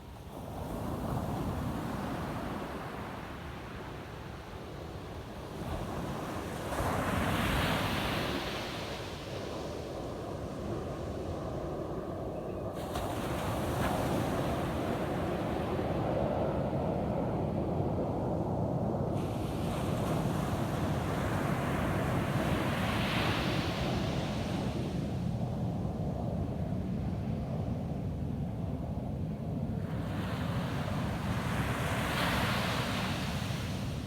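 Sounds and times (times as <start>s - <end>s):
ocean surf on a beach: 29.9s - 34.0s.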